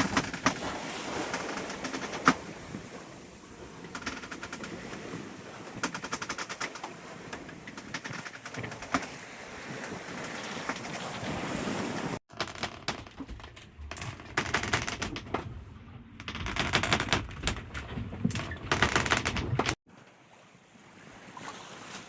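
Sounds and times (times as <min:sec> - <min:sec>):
water noise: 0:00.0 - 0:12.2
wind: 0:00.0 - 0:22.0.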